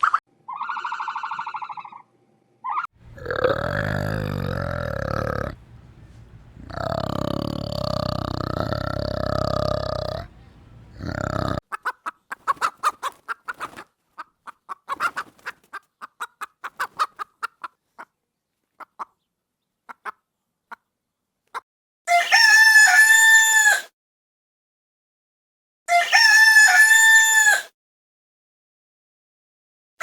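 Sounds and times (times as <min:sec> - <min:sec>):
low animal call: 0:03.0 - 0:11.6
chickens clucking: 0:03.0 - 0:13.8.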